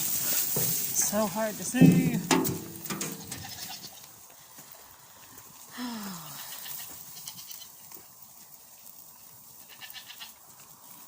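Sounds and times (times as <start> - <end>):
goat bleating: 3.0 - 4.1, 6.3 - 7.8, 9.6 - 10.4.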